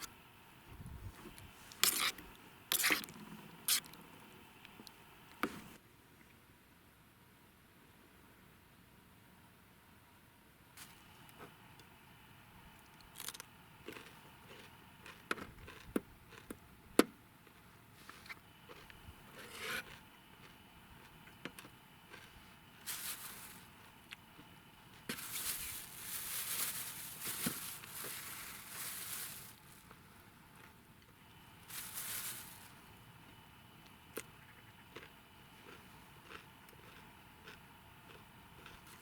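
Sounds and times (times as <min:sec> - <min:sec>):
rustling and crinkling: 0:10.8 - 0:11.6, 0:22.1 - 0:30.8, 0:31.5 - 0:33.0.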